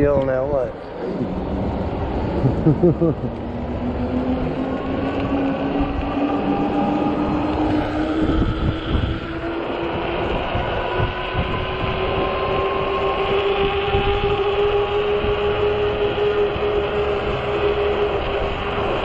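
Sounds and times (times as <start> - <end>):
wind buffeting microphone: 0.0 - 19.0
electric motor whining: 0.8 - 19.0.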